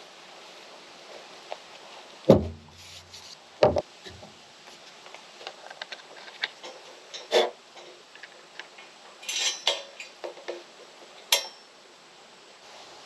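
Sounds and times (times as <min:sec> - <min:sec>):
sharp knock with low ring: 0:02.3 - 0:02.8
hardware clicks and rubbing: 0:02.3 - 0:11.7.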